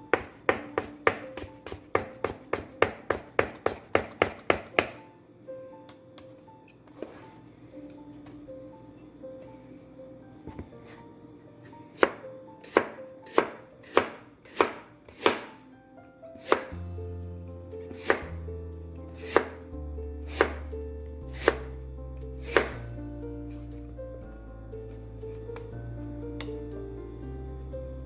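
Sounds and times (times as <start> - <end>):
knife chopping on cutting board: 0.1 - 5.0, 12.0 - 15.6, 16.4 - 16.7, 18.0 - 18.3, 19.2 - 19.6, 20.3 - 20.6, 21.4 - 21.7, 22.5 - 22.7.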